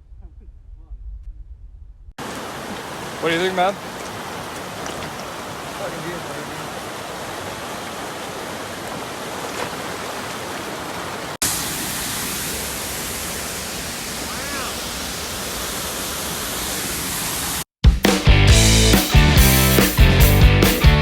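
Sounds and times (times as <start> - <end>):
river water rushing: 2.2 - 17.6.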